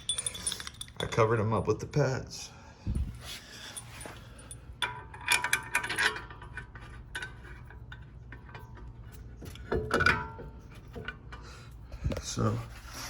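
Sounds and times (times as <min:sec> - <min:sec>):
metal parts clinking: 0:00.0 - 0:01.5, 0:03.7 - 0:08.9.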